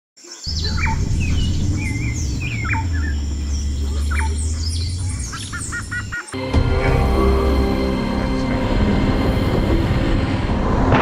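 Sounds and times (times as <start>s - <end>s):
birds chirping and calling: 0.2s - 6.9s
steady low rumble: 0.5s - 11.0s.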